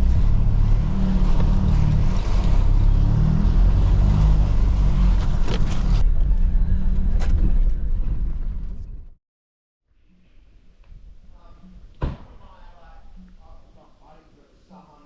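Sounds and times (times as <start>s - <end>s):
vehicle engine and tyres rumbling: 0.0s - 9.2s.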